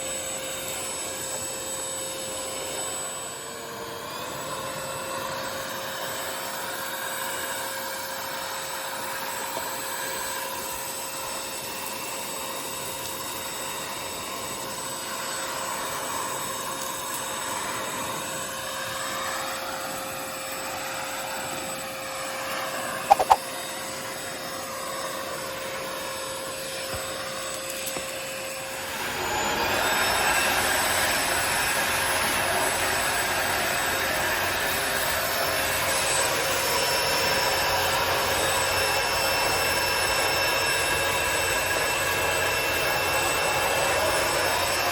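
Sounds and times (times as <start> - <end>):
vacuum motor whine: 0.0 - 44.9
sharp clicks: 23.1 - 23.4.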